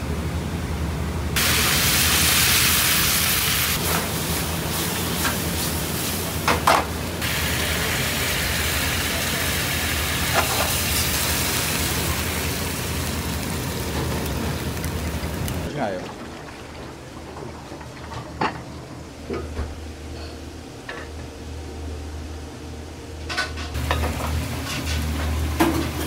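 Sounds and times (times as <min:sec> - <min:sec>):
food sizzling in hot oil: 0:01.4 - 0:06.5, 0:07.2 - 0:15.7.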